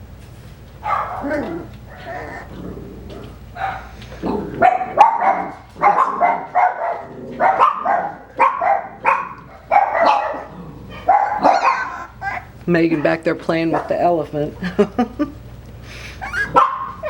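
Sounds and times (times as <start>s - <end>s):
puppies barking high-pitched: 0.8s - 2.6s, 3.5s - 14.2s, 16.2s - 17.0s.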